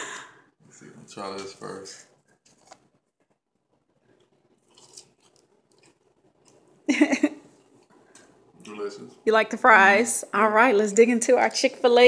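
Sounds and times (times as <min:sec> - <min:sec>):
man chewing crunchy fries: 0:03.9 - 0:06.9.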